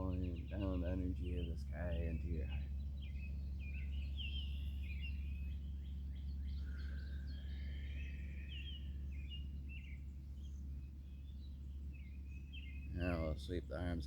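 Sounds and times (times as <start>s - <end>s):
birds singing and chirping: 0.0s - 14.0s
steady low rumble: 0.0s - 14.0s.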